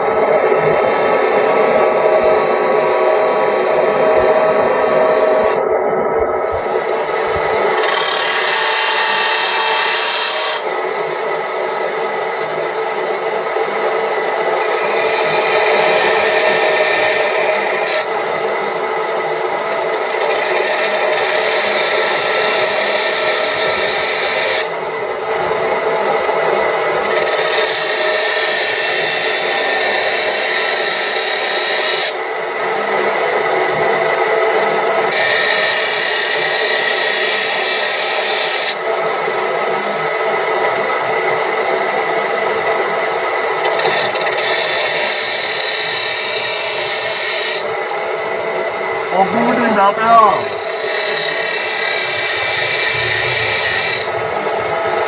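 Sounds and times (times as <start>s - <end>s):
lathe motor hum: 0.0s - 55.0s
tool scraping metal: 7.7s - 10.7s, 43.5s - 47.7s, 49.4s - 54.1s.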